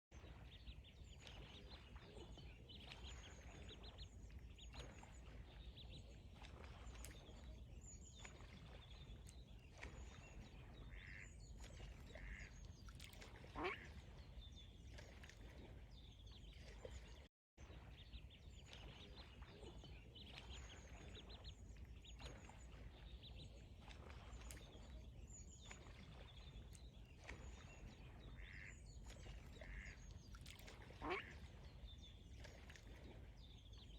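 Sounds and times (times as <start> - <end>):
ducks calling: 10.9 - 11.2, 12.2 - 12.5, 28.4 - 28.7, 29.6 - 30.0.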